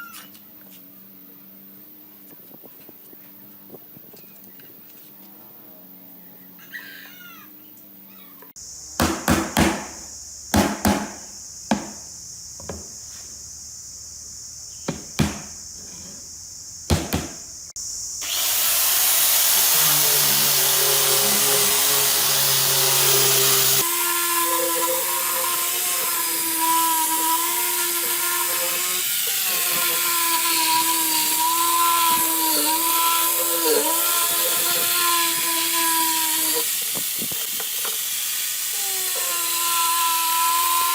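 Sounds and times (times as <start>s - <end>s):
steady hiss: 8.5s - 40.9s
sharp knocks: 10.5s - 12.0s, 14.9s - 15.5s, 16.9s - 17.4s
power tool whining: 18.2s - 40.9s.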